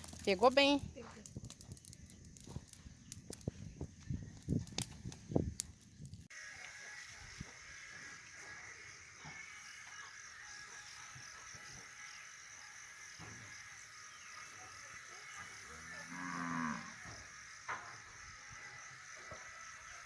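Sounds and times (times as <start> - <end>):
cow mooing: 15.8 - 17.0.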